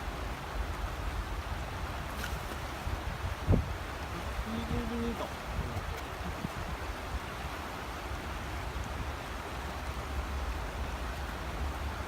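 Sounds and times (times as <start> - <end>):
flowing river rushing: 0.0 - 12.0.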